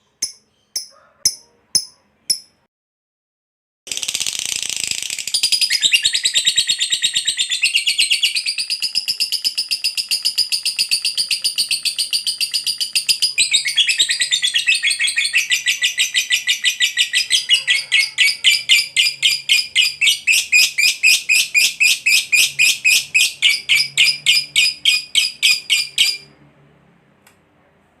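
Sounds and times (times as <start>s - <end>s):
lovebird chattering trill: 4.2s - 26.3s.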